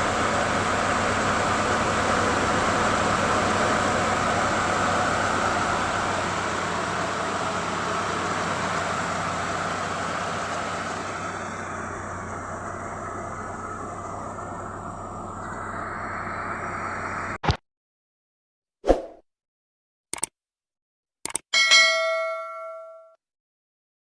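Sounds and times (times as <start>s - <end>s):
car engine running: 0.0s - 17.4s.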